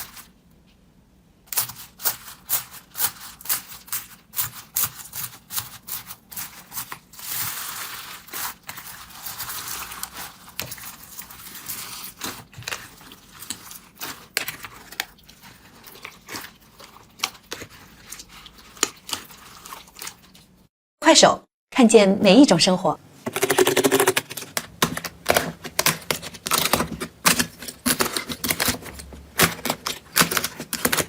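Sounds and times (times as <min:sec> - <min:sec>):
slime crackling: 0:01.5 - 0:20.5.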